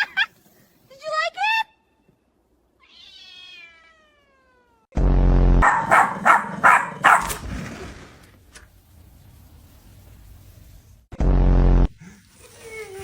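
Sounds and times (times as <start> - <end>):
cat meowing: 2.8 - 4.8
cat yowling and crying: 2.8 - 4.9.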